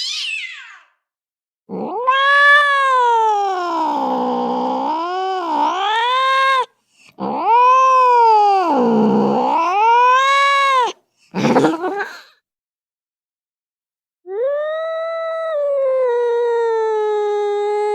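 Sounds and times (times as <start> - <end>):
cat harsh cry: 0.0 - 0.9, 1.9 - 6.7
cat yowling: 0.0 - 0.9, 1.7 - 11.8.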